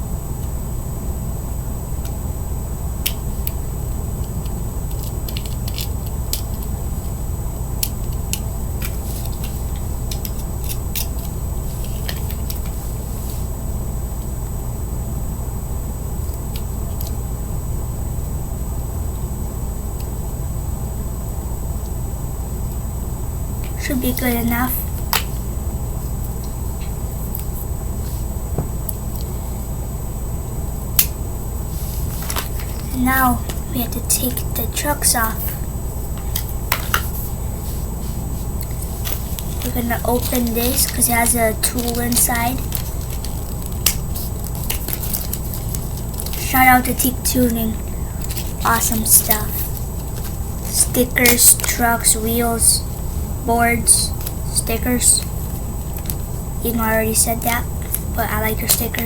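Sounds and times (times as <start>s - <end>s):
faint high whine: 0.0s - 59.0s
steady low hum: 0.0s - 59.0s
small parts clicking and tapping: 4.2s - 6.7s.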